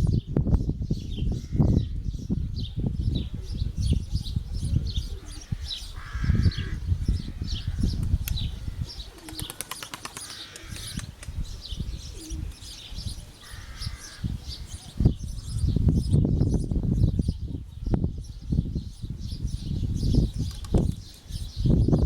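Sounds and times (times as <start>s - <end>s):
wind on microphone: 0.0s - 9.8s, 10.6s - 22.0s
pigeons cooing: 2.6s - 15.6s
pigeons flapping wings: 9.1s - 11.4s, 20.4s - 21.0s.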